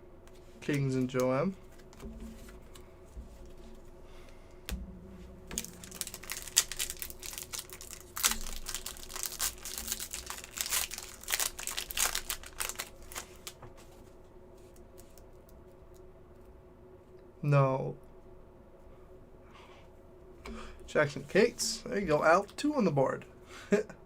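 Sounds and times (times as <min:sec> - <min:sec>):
foil wrapper crinkling and tearing: 0:05.5 - 0:13.6.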